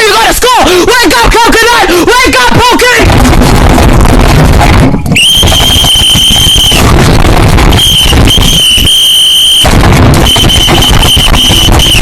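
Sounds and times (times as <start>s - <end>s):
rough distorted noise: 3.0s - 12.0s
high-pitched squealing tone: 5.1s - 12.0s.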